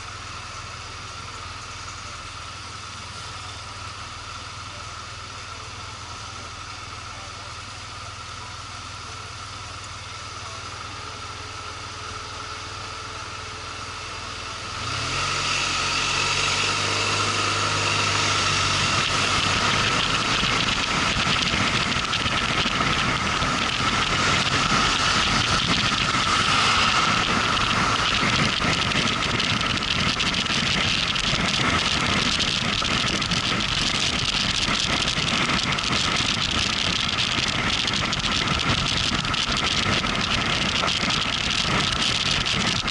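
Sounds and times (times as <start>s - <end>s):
motorcycle engine: 0.0s - 42.9s
wind noise: 16.0s - 42.9s.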